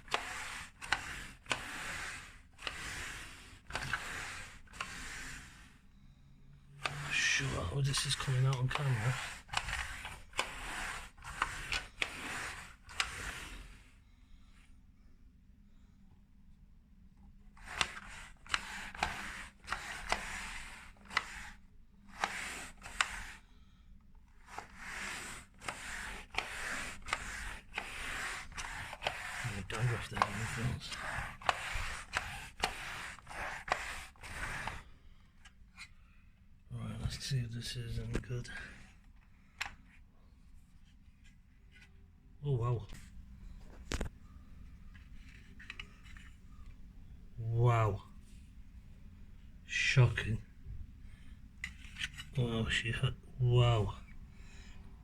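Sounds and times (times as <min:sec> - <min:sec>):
roller rasping over fabric: 0:00.0 - 0:14.0, 0:17.5 - 0:23.6, 0:24.3 - 0:35.0, 0:42.5 - 0:55.0.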